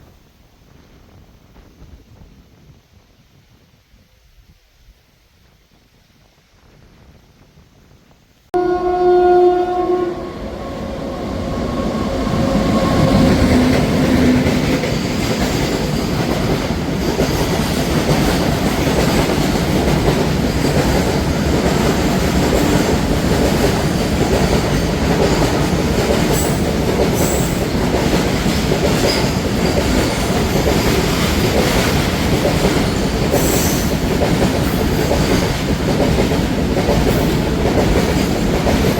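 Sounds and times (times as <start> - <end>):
train horn: 8.6 - 14.9
train wheels rumbling on rail: 8.6 - 38.9
clickety-clack over rail joints: 11.7 - 38.9.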